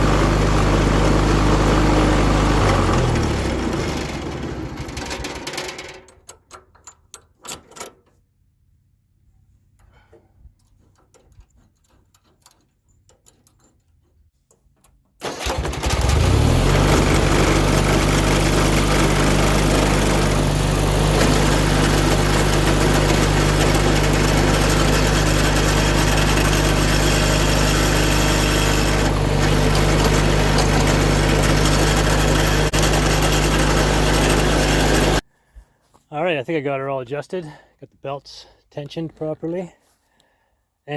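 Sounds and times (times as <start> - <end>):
tractor engine starting and running: 0.0 - 8.2, 14.6 - 35.2.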